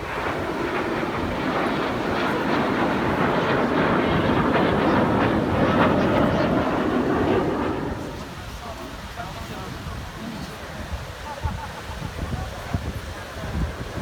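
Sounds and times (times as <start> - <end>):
jet aircraft flying past: 0.0 - 11.0.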